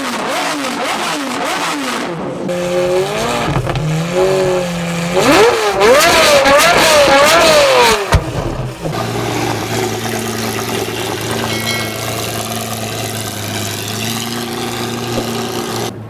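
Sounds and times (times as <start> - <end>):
car engine idling: 2.5 - 16.0.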